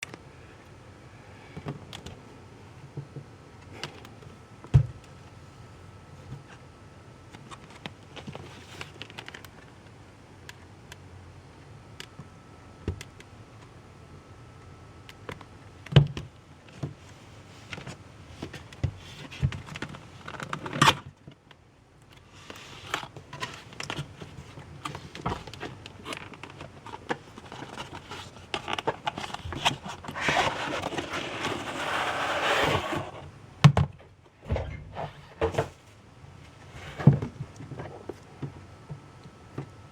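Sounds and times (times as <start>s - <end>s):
packaging rustling: 23.4s - 33.2s.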